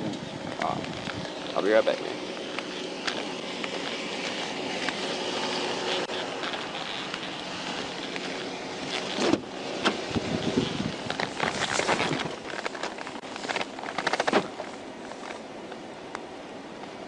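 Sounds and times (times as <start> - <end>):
wind on microphone: 0.0 - 1.6, 9.1 - 13.2
traffic: 0.0 - 17.0.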